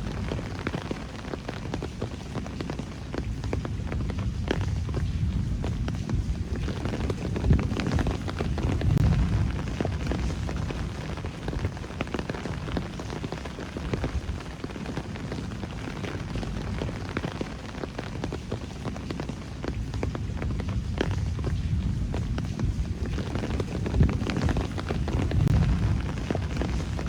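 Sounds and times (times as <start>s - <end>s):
raindrops ticking and tapping: 0.0s - 27.0s
low rumble: 4.0s - 12.8s, 20.2s - 27.0s.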